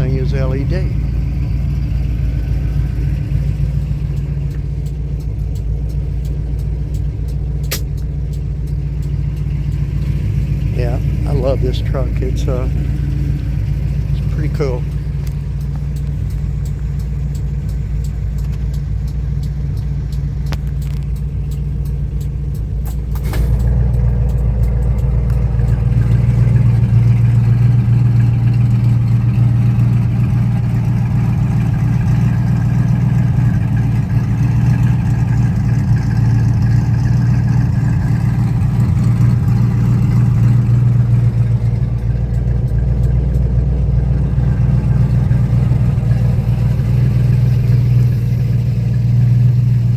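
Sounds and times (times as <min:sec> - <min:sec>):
pickup truck engine running: 0:00.0 - 0:49.9
sharp click: 0:04.1 - 0:09.8, 0:14.2 - 0:26.2.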